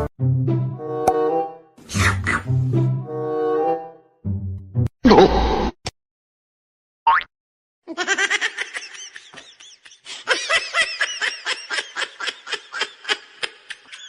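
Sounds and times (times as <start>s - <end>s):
person laughing: 7.9s - 14.0s.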